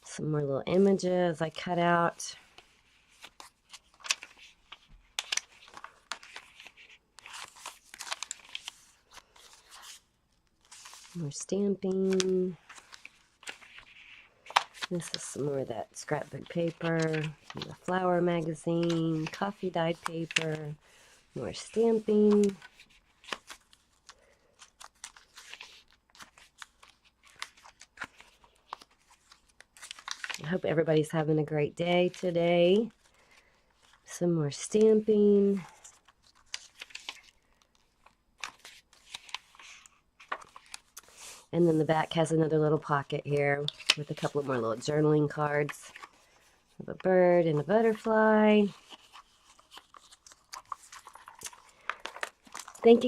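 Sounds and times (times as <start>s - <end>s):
paper pages rustling and flicking: 1.6s - 31.3s, 31.9s - 53.0s.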